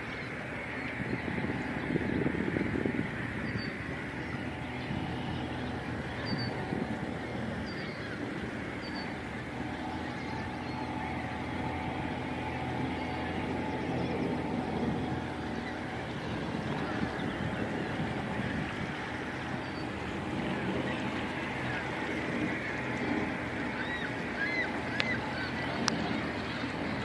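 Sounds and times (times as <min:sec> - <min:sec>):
boat engine running: 0:00.0 - 0:27.0
short high bird calls: 0:23.7 - 0:25.7.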